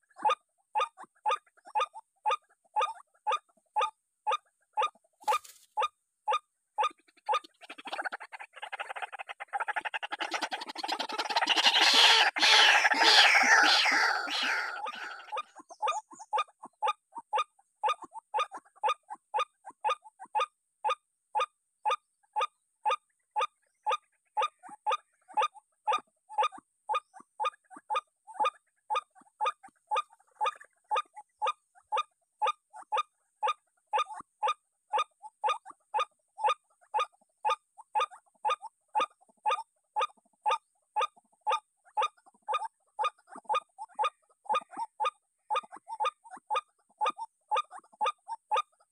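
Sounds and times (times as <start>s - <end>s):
bird calling with harsh notes: 11.3s - 16.1s.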